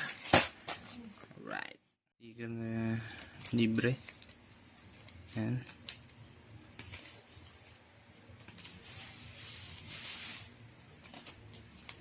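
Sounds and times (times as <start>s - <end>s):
plastic packaging rustling: 3.2s - 12.0s.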